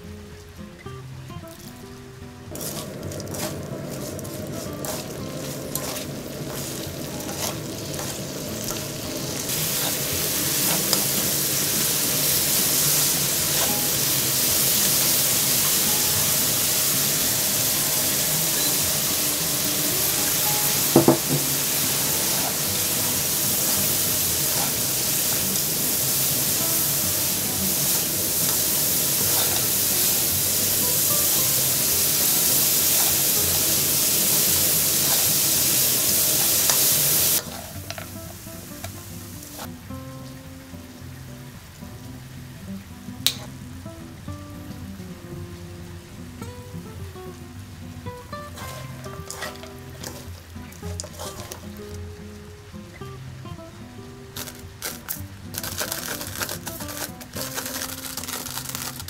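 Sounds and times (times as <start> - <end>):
fish sizzling in pan: 1.4 - 59.0
nuts clattering into pan: 54.4 - 59.0.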